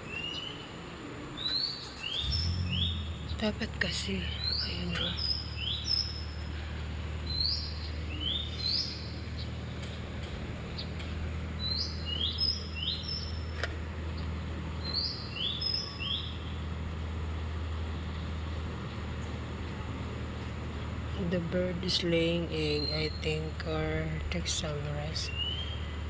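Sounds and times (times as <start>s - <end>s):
small bird chirping: 1.4s - 6.6s, 7.2s - 9.6s, 11.6s - 13.6s, 14.2s - 16.6s
steady low hum: 2.1s - 26.0s.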